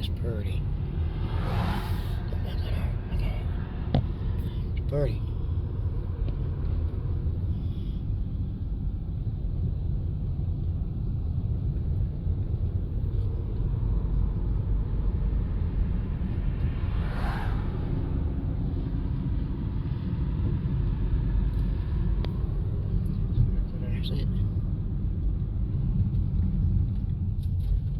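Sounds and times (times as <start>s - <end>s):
car driving rumble: 0.0s - 27.9s
short whoosh: 0.9s - 3.0s, 16.4s - 19.0s.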